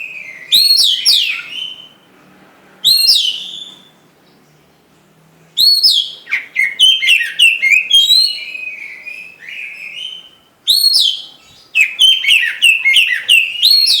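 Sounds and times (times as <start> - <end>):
bird singing whistled chirping notes: 0.0 - 2.1, 2.8 - 4.6, 5.6 - 14.0.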